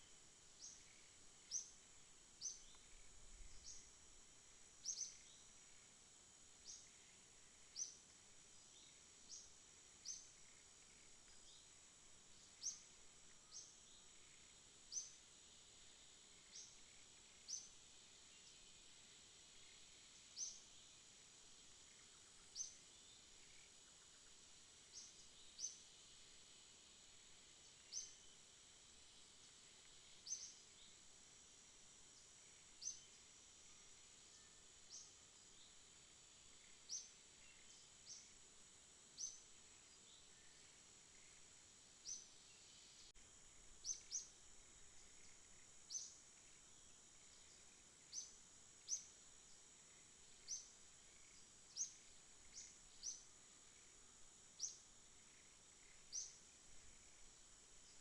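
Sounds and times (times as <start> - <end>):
insect high-pitched trill: 0.0 - 58.0
short high insect chirps: 4.8 - 5.5, 29.2 - 31.0, 42.0 - 44.4, 45.0 - 46.6, 47.4 - 49.2, 49.9 - 53.9, 54.5 - 58.0.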